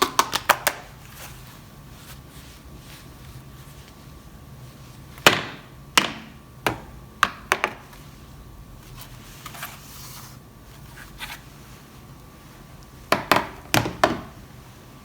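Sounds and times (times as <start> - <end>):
soft rustle: 1.0 - 5.1.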